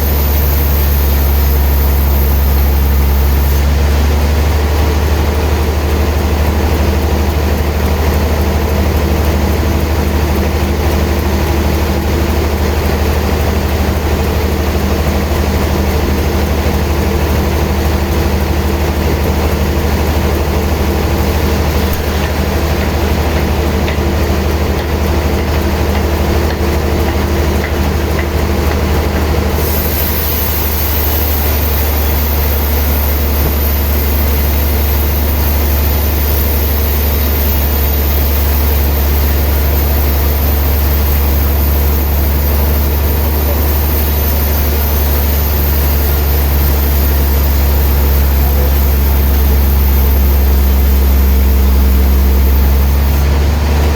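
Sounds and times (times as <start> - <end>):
hiss: 0.0 - 4.2, 11.0 - 53.4
sawmill machinery humming: 0.0 - 53.9.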